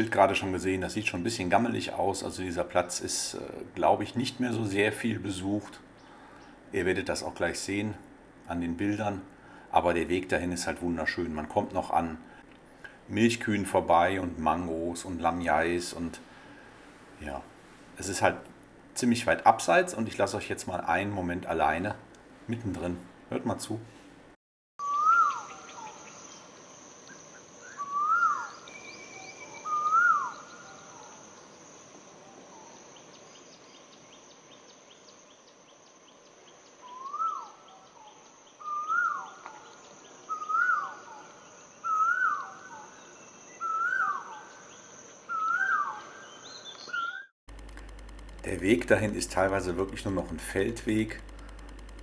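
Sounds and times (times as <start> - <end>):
bird calling: 24.8 - 31.6, 36.6 - 47.3
high insect drone: 24.8 - 45.5.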